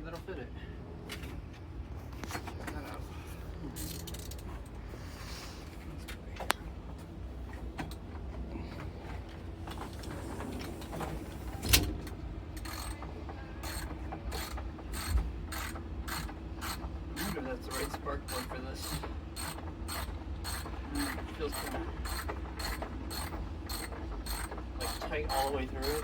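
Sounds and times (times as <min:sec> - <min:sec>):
socket wrench ratchet clicks: 0:12.6 - 0:13.0, 0:13.6 - 0:26.0.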